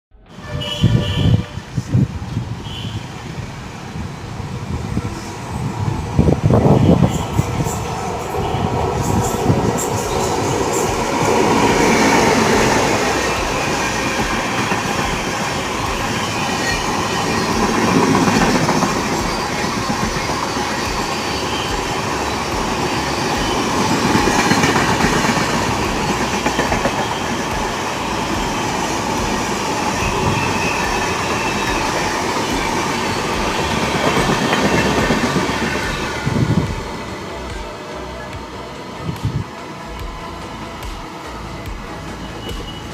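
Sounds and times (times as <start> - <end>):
train wheels clattering over rail joints: 8.9 - 38.5.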